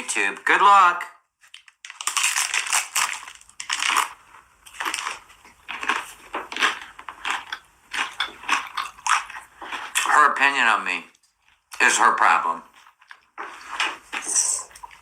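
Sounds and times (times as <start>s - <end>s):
person chewing crunchy food: 1.5s - 10.2s, 11.1s - 11.8s, 12.6s - 15.0s.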